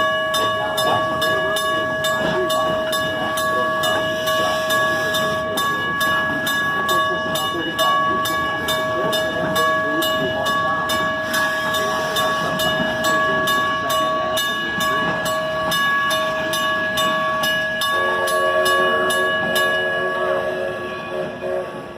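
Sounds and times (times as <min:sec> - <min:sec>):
crossing signal bell ringing: 0:00.0 - 0:21.9
passing train rumble: 0:00.0 - 0:21.9
steam locomotive whistle: 0:17.8 - 0:21.9.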